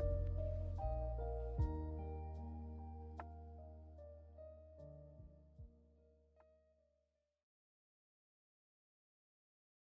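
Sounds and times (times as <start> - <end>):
faint music: 0.0 - 6.0.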